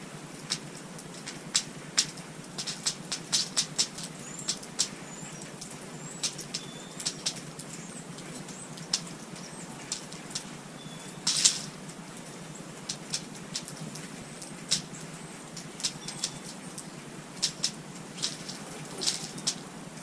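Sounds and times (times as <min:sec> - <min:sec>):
songbirds chirping: 0:00.0 - 0:20.0
sharp ticks and taps: 0:00.5 - 0:10.5, 0:11.3 - 0:19.7
whistled bird calls: 0:03.5 - 0:11.7, 0:14.3 - 0:19.7.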